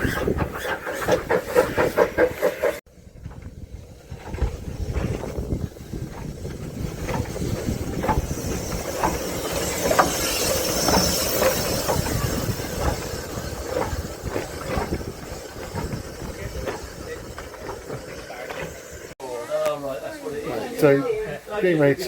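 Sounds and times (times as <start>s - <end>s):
wheels clicking over rail joints: 0.0s - 19.8s
steam train rumbling: 0.0s - 22.0s
hiss of steam: 7.0s - 19.1s.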